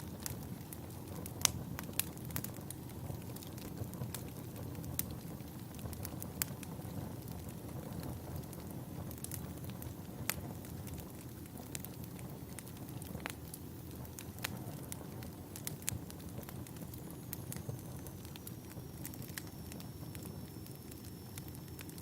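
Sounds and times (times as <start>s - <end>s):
fire crackling and popping: 0.0s - 22.0s
faint high whistle: 17.1s - 22.0s.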